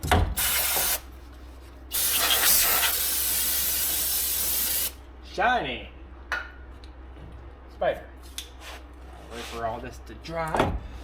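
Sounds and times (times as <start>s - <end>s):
aerosol spray hissing: 0.4s - 1.0s, 1.9s - 5.0s.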